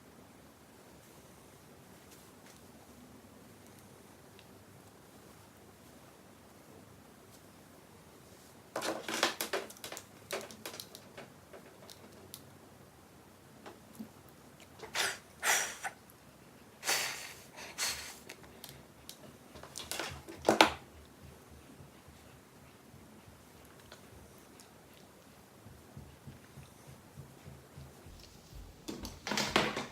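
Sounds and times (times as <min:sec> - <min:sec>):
hair rustling: 0:16.9 - 0:29.9.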